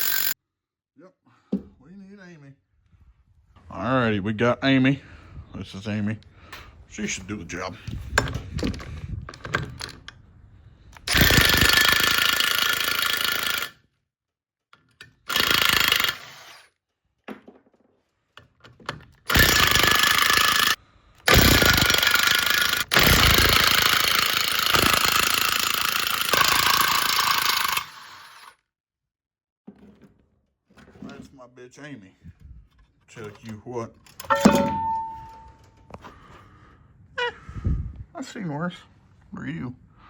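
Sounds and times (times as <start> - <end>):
impact wrench hammering: 0.0 - 0.4, 19.3 - 27.8, 34.3 - 35.6.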